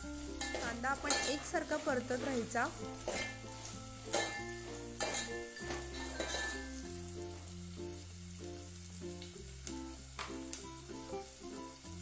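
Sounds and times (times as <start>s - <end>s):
background music: 0.0s - 12.0s
onion sizzling in hot oil: 0.0s - 12.0s
metal spoon scraping a pot: 0.4s - 6.8s.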